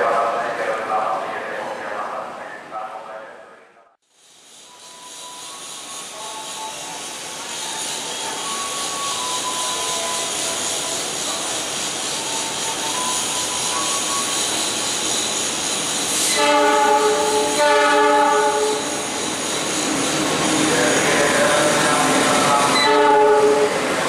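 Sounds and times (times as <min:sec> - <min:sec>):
locomotive engine and rail noise: 0:00.0 - 0:24.0
multi-tone train horn: 0:16.2 - 0:19.0, 0:22.4 - 0:23.8.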